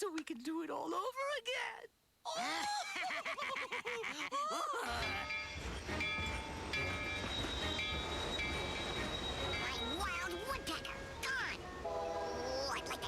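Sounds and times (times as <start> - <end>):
cartoon train rumbling: 4.8 - 13.0
train whistle: 6.8 - 12.7.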